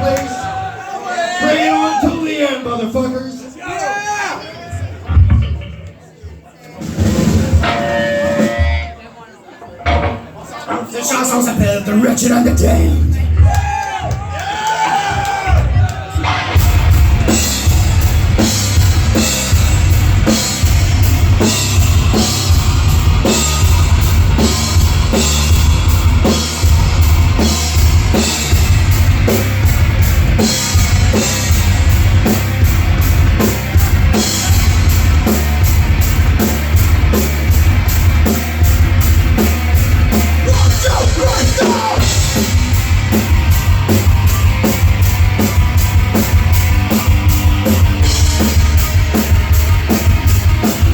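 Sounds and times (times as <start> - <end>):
fast pounding drum kit: 6.8 - 8.9, 15.2 - 50.9
heavy metal band playing: 6.8 - 9.0, 11.2 - 13.8, 14.9 - 50.9
distorted guitars: 7.0 - 9.0, 16.0 - 50.9.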